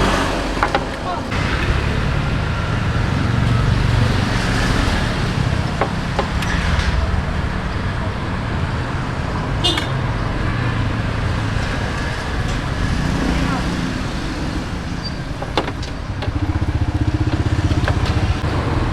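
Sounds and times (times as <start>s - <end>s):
street traffic humming: 0.0s - 18.9s
faint voices: 11.5s - 18.4s.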